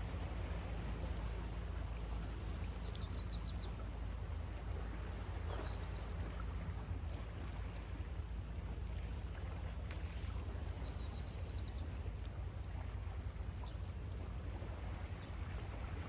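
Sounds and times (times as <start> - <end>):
sea surf on beach: 0.0 - 9.6.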